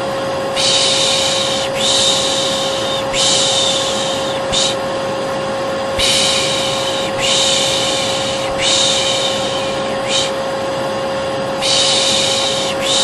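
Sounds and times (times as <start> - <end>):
vacuum cleaner running: 0.0 - 13.0
person shushing: 0.6 - 4.8, 6.0 - 10.4, 11.6 - 13.0.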